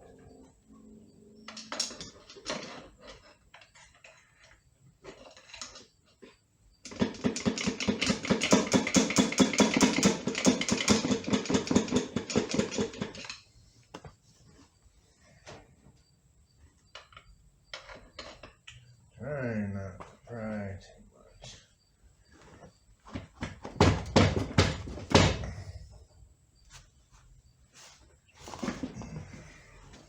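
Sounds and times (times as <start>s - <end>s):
rapid hammering rattle: 6.8s - 13.4s.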